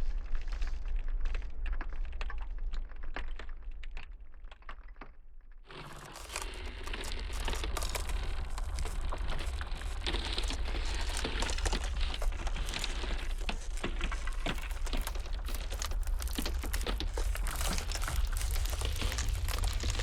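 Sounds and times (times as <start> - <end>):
ice cracking: 5.7 - 20.0
low rumble of blizzard wind: 5.7 - 20.0.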